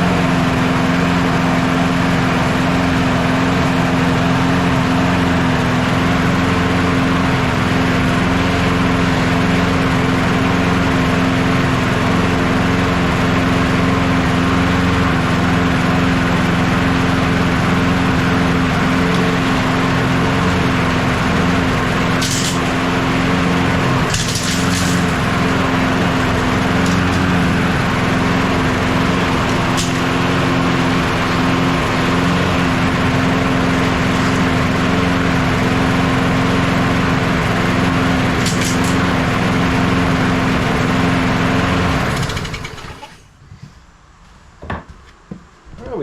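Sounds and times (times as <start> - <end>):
lawn mower engine running: 0.0 - 43.3
acorns tinking against mower: 8.2 - 43.0.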